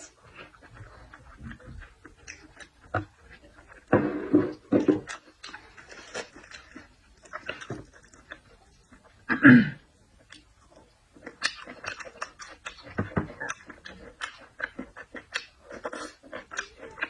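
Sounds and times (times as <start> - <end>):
seafood being chewed: 0.0 - 17.0.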